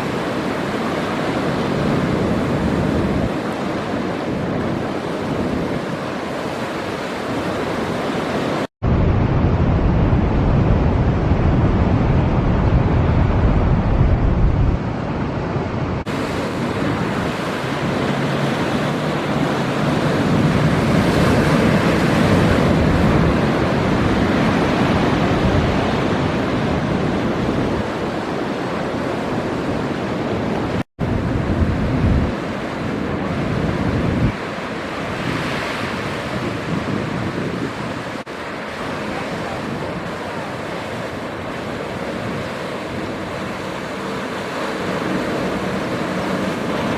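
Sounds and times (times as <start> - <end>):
heavy surf breaking: 0.0 - 46.9
wind buffeting microphone: 0.0 - 46.9.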